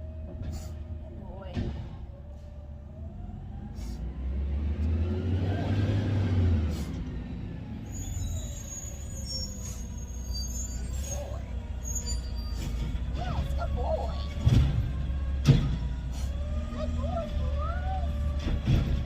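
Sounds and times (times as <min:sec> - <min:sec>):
garbage truck engine revving: 0:02.1 - 0:19.0
thin high squeals: 0:07.9 - 0:12.8.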